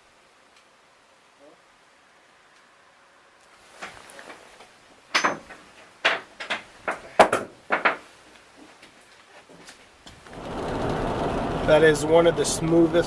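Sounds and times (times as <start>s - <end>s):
sharp knocks and clunks: 5.2s - 8.0s.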